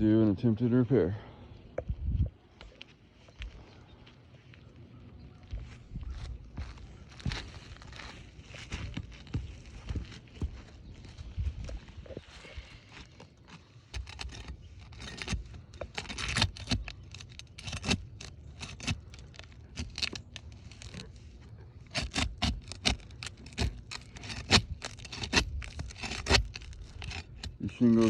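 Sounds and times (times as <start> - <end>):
shingles scraping and clicking: 12.8 - 28.0.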